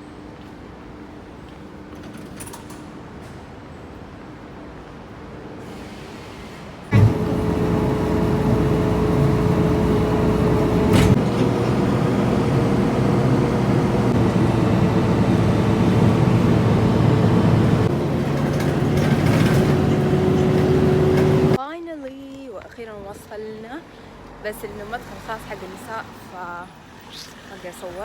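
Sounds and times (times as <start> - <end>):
vehicle engine and road noise: 6.9 - 21.6.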